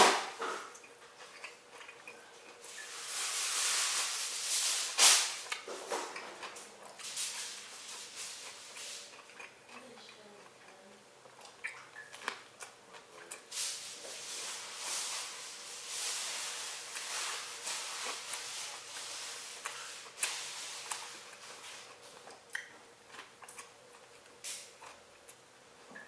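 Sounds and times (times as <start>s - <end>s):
person chewing: 0.6s - 3.1s, 5.4s - 13.5s, 16.5s - 26.0s.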